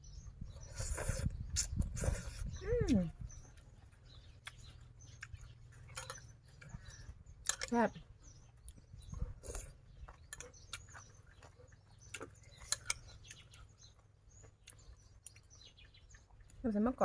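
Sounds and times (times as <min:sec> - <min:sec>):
faint birds chirping: 0:00.0 - 0:17.0
chewing with wet mouth clicks: 0:03.2 - 0:16.6.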